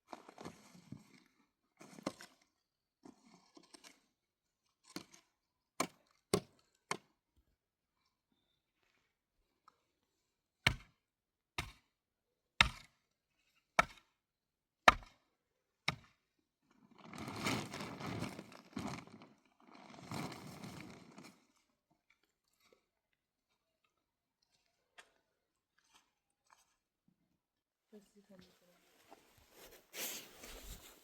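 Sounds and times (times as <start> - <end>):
scraping rustling noise: 28.2 - 31.0.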